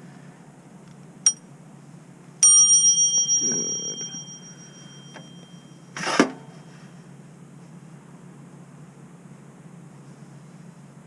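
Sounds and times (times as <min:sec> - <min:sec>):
bicycle bell ringing: 0:02.4 - 0:05.9.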